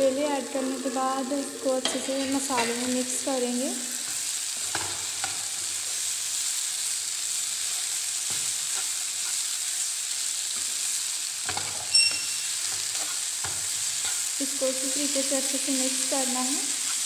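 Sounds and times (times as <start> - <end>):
vegetables sizzling in a frying pan: 0.0 - 17.0
steel spoon stirring and scraping: 11.5 - 14.4
spoon striking pan with metallic ring: 11.9 - 12.6.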